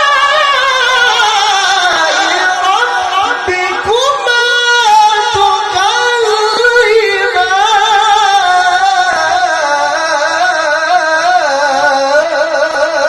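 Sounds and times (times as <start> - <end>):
person reciting melodically: 0.0 - 13.0.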